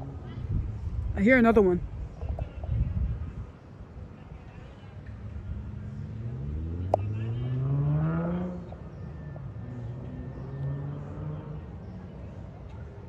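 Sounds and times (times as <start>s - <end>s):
vehicle engine accelerating: 5.4s - 12.2s.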